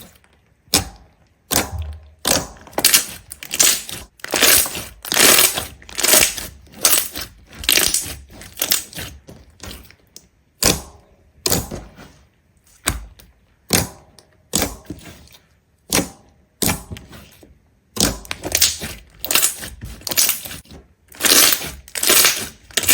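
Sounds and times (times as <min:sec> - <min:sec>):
brittle crunches and cracks: 0:00.0 - 0:10.2, 0:18.0 - 0:22.9.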